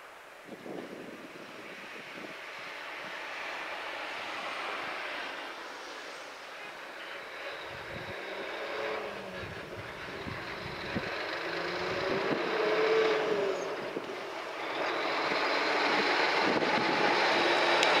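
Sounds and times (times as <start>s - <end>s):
electric train running: 6.7s - 18.0s.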